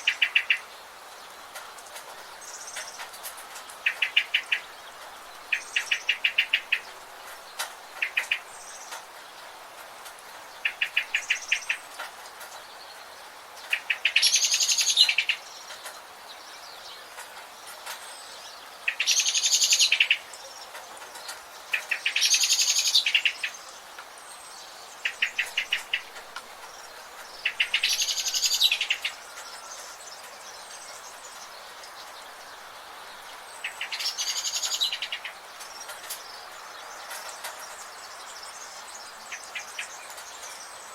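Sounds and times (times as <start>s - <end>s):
steady background hiss: 0.0s - 40.9s
bird rapid trills: 25.0s - 36.4s.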